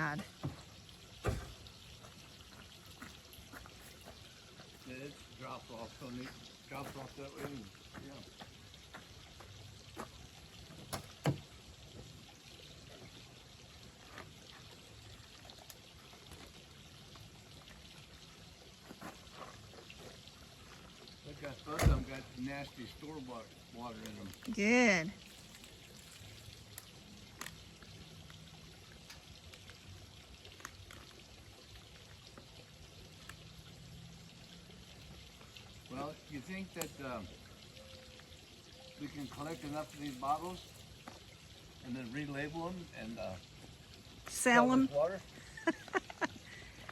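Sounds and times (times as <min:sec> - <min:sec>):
water pouring from a pipe: 0:00.0 - 0:46.9
water pouring into plastic bottle: 0:23.8 - 0:33.5, 0:39.0 - 0:41.3.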